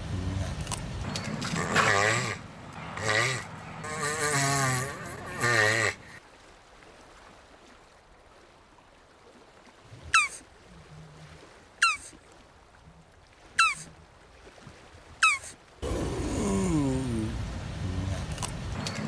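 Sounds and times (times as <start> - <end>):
tortoise calling: 0.0 - 6.2, 10.1 - 10.4, 11.8 - 12.2, 13.6 - 14.0, 15.2 - 19.0.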